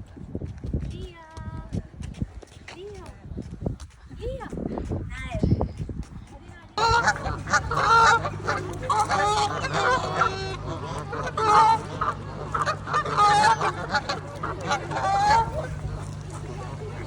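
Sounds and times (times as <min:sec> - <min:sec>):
steady low hum: 0:04.7 - 0:17.0
geese honking: 0:06.8 - 0:17.0.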